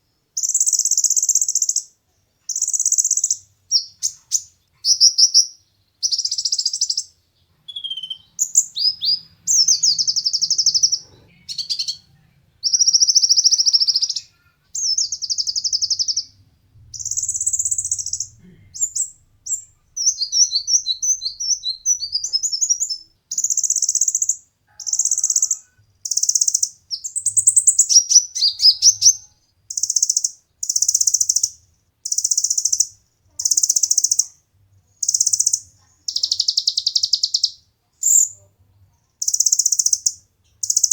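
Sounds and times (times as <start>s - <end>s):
bird twittering notes: 7.7s - 12.0s, 14.8s - 24.2s
sunbird singing trilled phrases: 7.7s - 16.4s, 17.0s - 34.3s, 35.0s - 38.4s.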